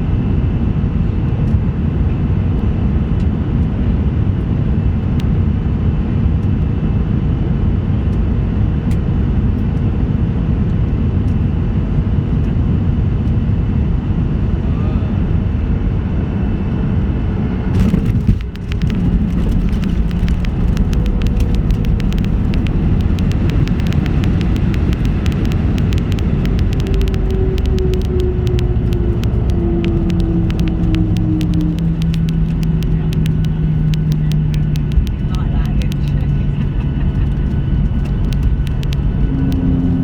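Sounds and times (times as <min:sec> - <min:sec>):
airplane cabin rumble: 0:00.0 - 0:40.0
jet engine tones: 0:17.6 - 0:40.0
rapid rattling clicks: 0:17.7 - 0:40.0.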